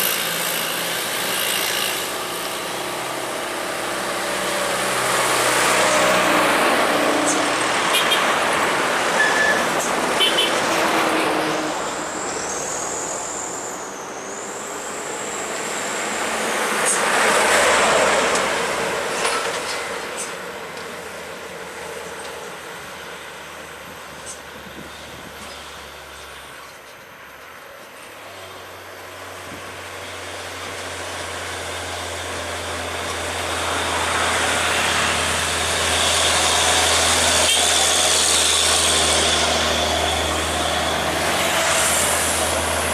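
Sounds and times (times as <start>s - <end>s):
trucks and traffic passing: 0.0s - 42.9s
thin high whistle: 9.2s - 9.8s.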